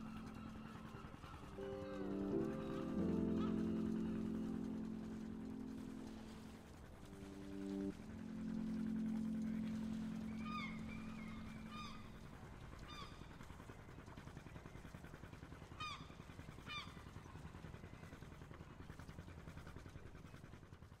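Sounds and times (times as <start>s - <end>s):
low held tone: 0.0s - 12.6s
faint honking bird calls: 0.0s - 13.2s.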